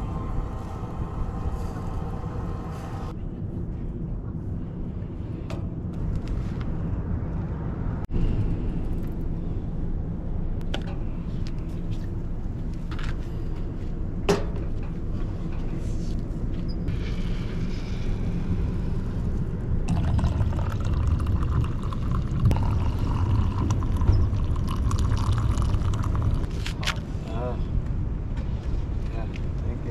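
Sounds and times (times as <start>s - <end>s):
steady low rumble: 0.0s - 29.9s
liquid pouring into a cup: 19.9s - 26.6s.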